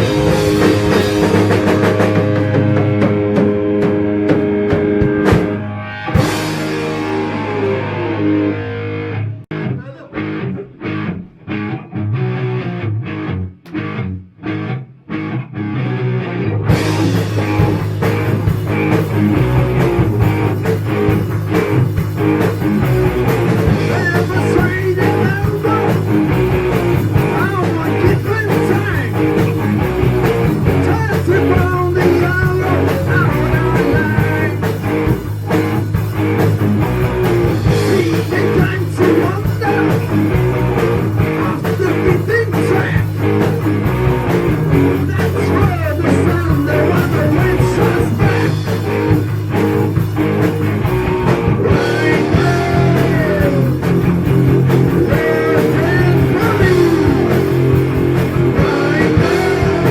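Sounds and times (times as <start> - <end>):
steady drum beat: 0.0 - 7.6, 16.7 - 59.9
bass guitar: 0.0 - 59.9
electric guitars bending notes: 0.0 - 59.9.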